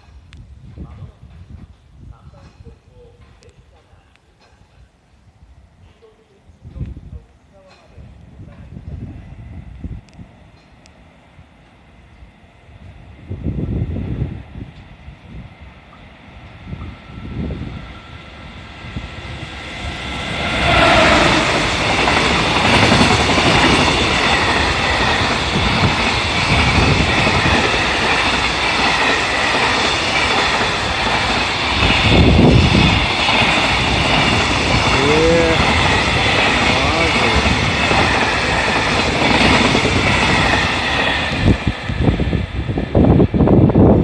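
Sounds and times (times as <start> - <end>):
locomotive passing: 15.5 - 44.0
wagon wheels rushing on rail: 16.8 - 44.0.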